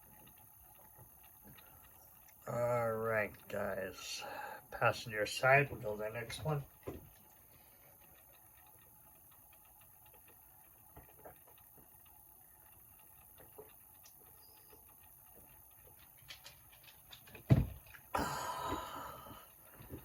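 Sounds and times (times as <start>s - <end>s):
clicks and taps of small objects: 13.4s - 18.0s
dull thump: 17.5s - 17.8s.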